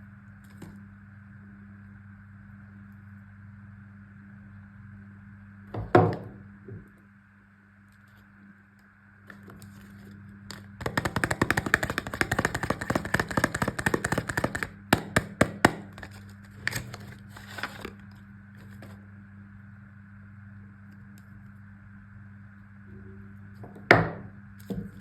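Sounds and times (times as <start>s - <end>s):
packaging crinkling: 10.5s - 18.0s.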